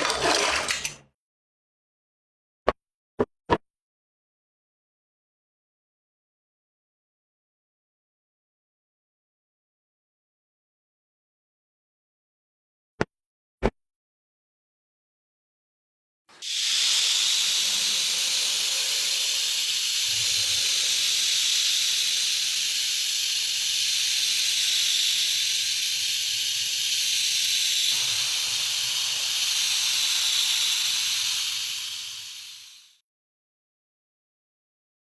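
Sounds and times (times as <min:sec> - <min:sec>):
loud steady hiss: 0:16.5 - 0:33.0.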